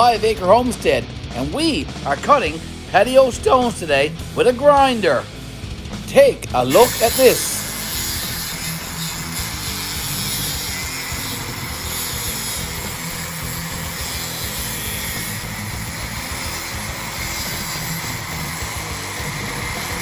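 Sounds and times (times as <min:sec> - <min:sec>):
angle grinder cutting stone: 0:06.2 - 0:20.0.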